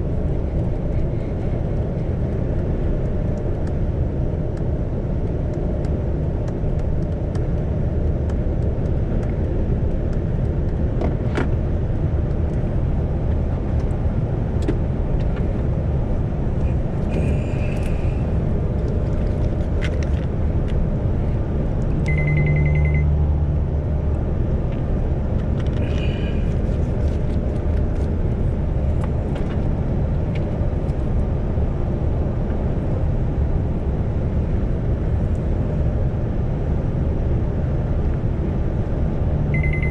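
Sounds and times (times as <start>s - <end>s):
truck diesel engine droning: 11.7s - 19.8s, 20.4s - 29.2s, 39.2s - 39.9s
short steady tone: 22.0s - 23.2s, 39.5s - 39.9s
short high-pitched beeps: 22.1s - 23.1s, 39.5s - 39.9s.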